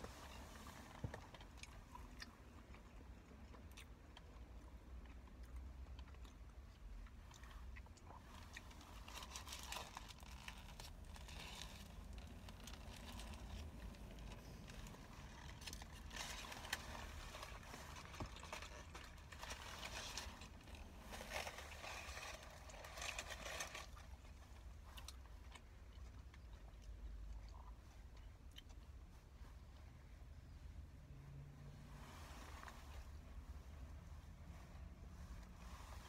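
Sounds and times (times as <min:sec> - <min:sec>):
chewing and biting sandwich: 0:01.1 - 0:29.8.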